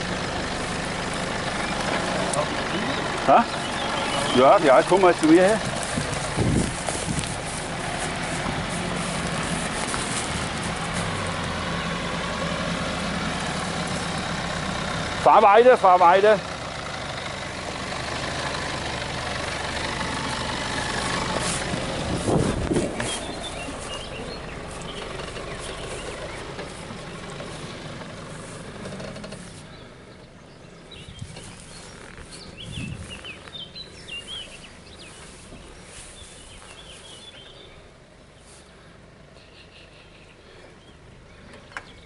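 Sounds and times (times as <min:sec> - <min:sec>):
off-road vehicle engine running: 0:00.0 - 0:42.0.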